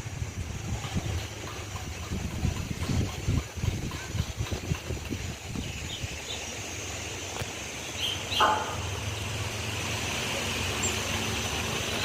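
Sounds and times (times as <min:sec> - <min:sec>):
low engine hum: 0:00.0 - 0:12.0
bird chirps: 0:07.8 - 0:09.3.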